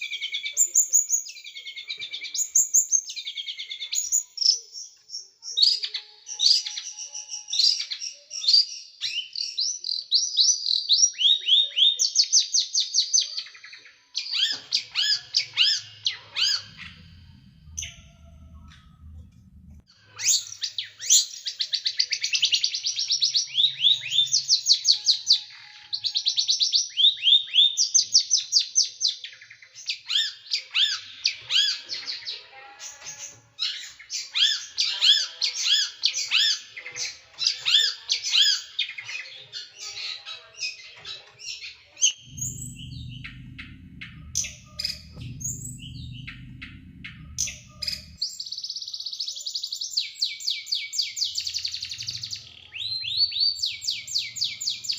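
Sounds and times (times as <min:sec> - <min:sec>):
low steady hum: 0:15.6 - 0:19.9, 0:42.2 - 0:48.2.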